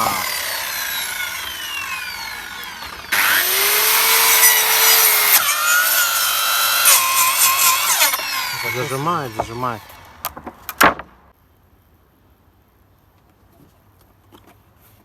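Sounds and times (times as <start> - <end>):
circular saw cutting wood: 0.0 - 10.6.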